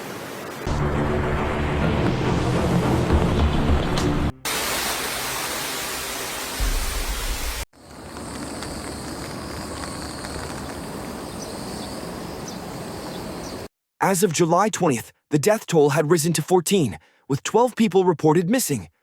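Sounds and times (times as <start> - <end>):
water rushing: 1.3 - 12.4.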